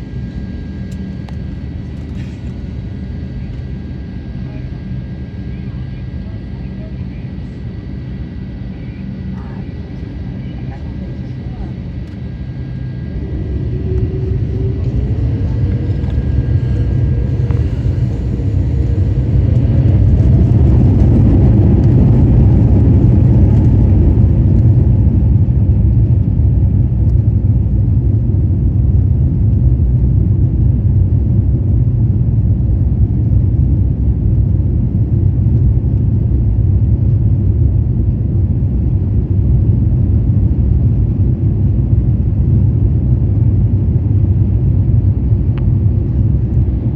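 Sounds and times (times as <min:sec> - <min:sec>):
takeoff run rumble: 0:00.0 - 0:30.6
jet engines spooling up: 0:09.1 - 0:24.8.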